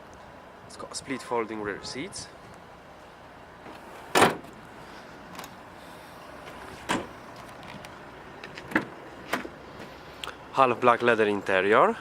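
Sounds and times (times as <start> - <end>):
clunks: 6.4 - 9.9.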